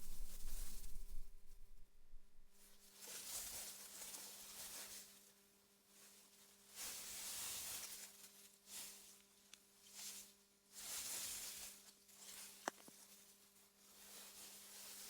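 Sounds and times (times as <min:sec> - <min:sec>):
wind gusting through grass: 0:00.0 - 0:02.6
low steady hum: 0:00.0 - 0:02.8.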